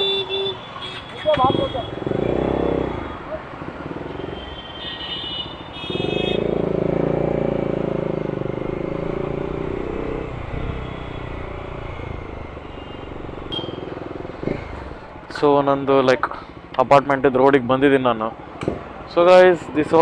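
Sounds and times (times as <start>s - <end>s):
motorcycle engine accelerating: 1.9s - 4.4s, 5.9s - 15.4s.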